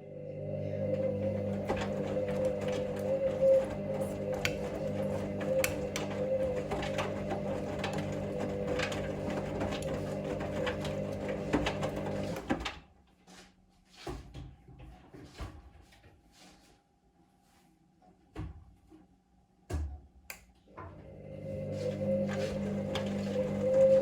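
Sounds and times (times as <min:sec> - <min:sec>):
washing machine motor hum: 0:00.0 - 0:13.0, 0:20.7 - 0:24.0
wash load knocking: 0:01.4 - 0:12.5.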